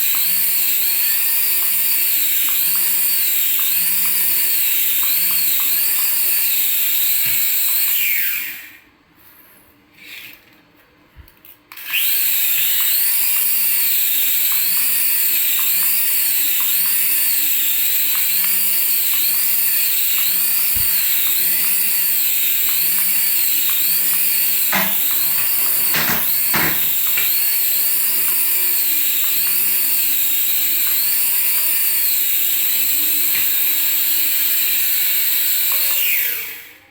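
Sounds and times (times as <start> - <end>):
small electric motor whining: 0.0 - 8.9, 11.8 - 36.9
clicks: 22.6 - 27.4.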